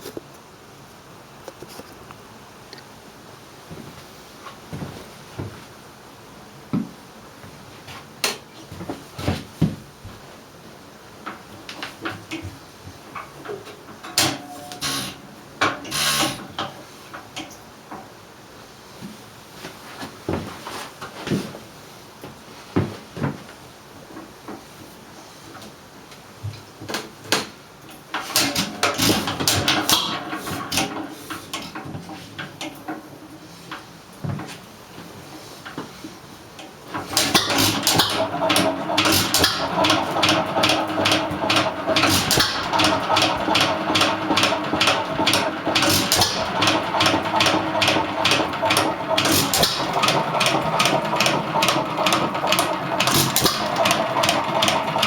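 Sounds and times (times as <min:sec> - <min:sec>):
engine clicks and knocking: 0:28.3 - 0:31.7, 0:36.9 - 0:55.0
stationary engine running: 0:37.1 - 0:55.0.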